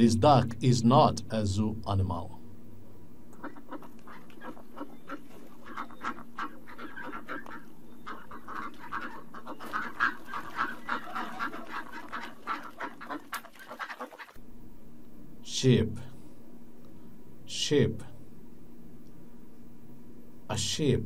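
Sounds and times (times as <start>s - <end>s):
steady low hum: 0.0s - 13.8s, 14.4s - 21.0s
ducks quacking: 3.4s - 14.4s.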